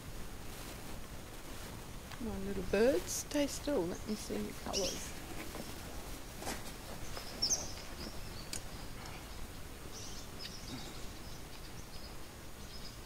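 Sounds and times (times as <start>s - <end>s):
low background noise: 0.0s - 13.0s
small bird chirping: 3.8s - 5.8s, 7.0s - 13.0s.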